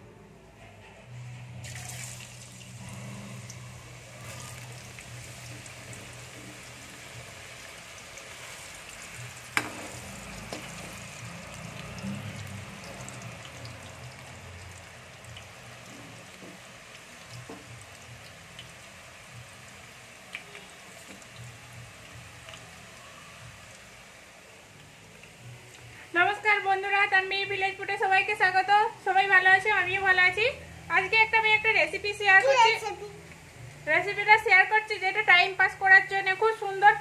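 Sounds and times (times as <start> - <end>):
potatoes sizzling in hot oil: 1.6 - 30.4.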